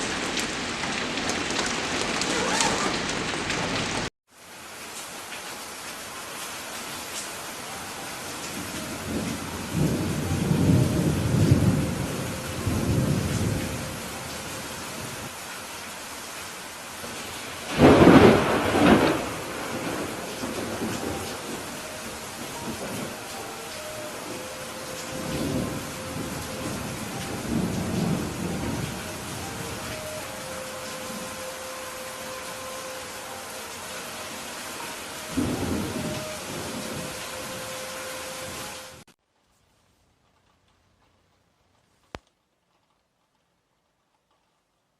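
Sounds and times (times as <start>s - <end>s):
steady rain falling: 0.0s - 44.9s
thunder rumbling: 8.3s - 15.3s, 17.0s - 33.6s, 34.4s - 39.0s.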